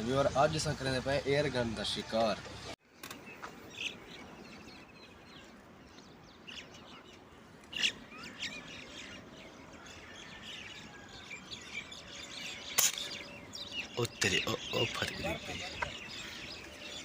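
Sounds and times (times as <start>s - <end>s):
faint outdoor hiss: 0.0s - 17.0s
small birds chirping: 0.0s - 17.0s.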